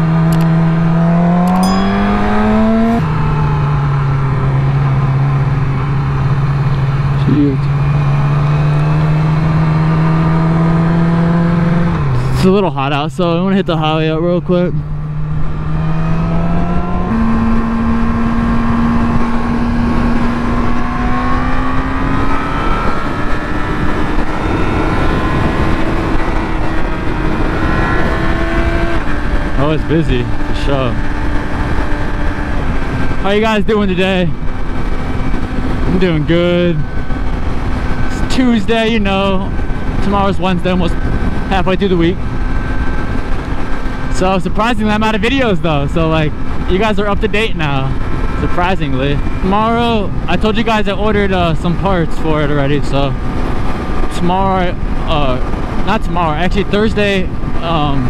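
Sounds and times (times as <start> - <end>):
motorcycle engine accelerating: 0.0 - 58.0
motorcycle gear shift: 1.4 - 1.7
wind rush on microphone: 14.8 - 58.0.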